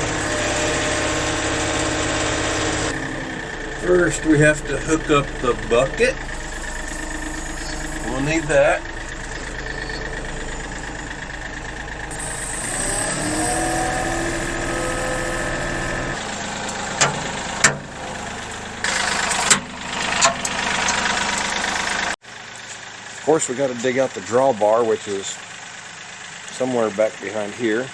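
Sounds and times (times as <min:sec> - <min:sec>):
rising tones: 0:00.0 - 0:22.0
tractor diesel engine running: 0:00.0 - 0:27.9
sharp clunks: 0:15.6 - 0:18.0.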